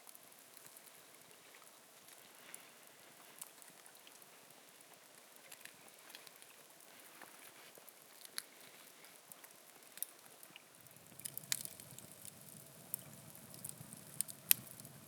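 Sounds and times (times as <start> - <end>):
faint steady hiss: 0.0 - 15.0
small ticks and clicks: 0.0 - 15.0.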